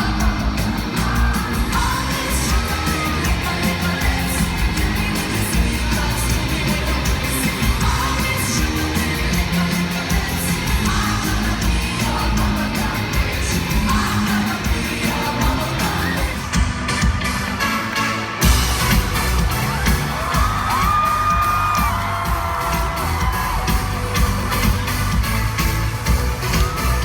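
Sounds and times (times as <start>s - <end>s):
person singing: 0.0s - 16.6s
crowd yelling: 0.0s - 27.0s
live pop music with bass beat: 0.0s - 27.0s.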